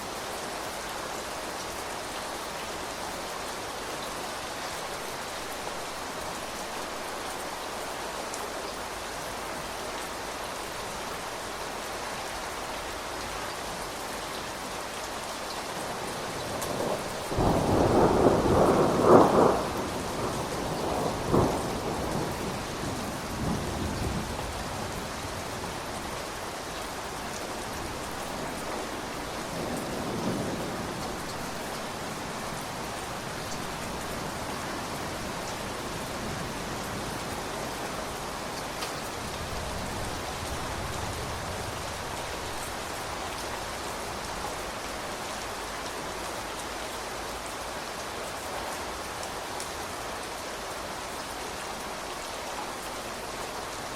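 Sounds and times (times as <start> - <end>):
steady rain: 0.0 - 53.9
thunder rumbling: 16.4 - 24.6.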